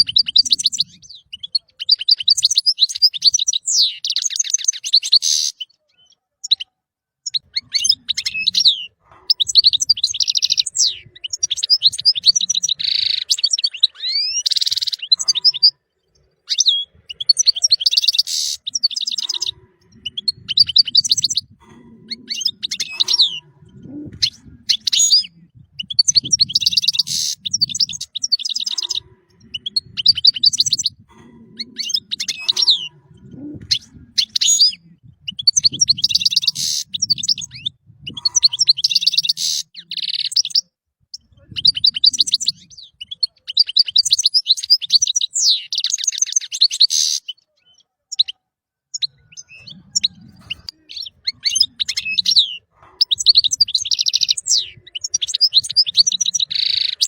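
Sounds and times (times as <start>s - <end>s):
goldfinch singing: 7.3s - 47.3s.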